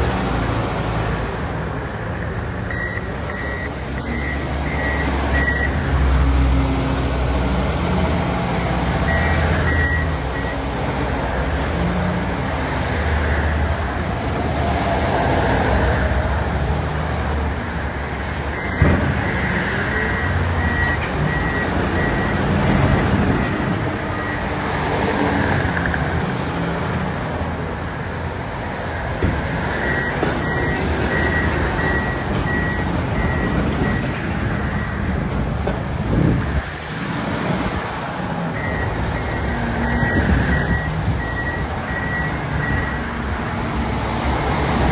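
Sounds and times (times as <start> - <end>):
diesel machinery engines running: 0.0 - 44.9
backup alarm beeping: 2.7 - 5.8, 9.1 - 10.6, 38.6 - 43.2.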